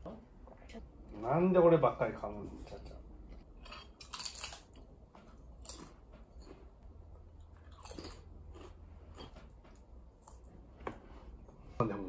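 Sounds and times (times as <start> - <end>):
crunchy food being chewed: 3.2 - 10.6.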